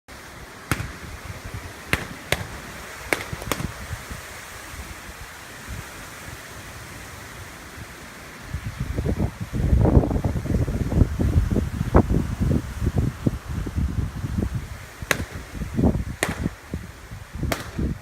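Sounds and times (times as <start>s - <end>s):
steady electrical hiss: 0.1s - 18.0s
power lines arcing snaps: 0.7s - 4.2s, 15.1s - 16.8s, 17.5s - 18.0s.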